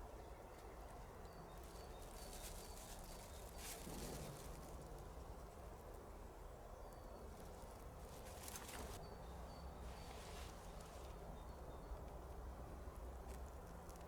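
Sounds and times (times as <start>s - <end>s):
brief rustle: 8.3s - 9.0s.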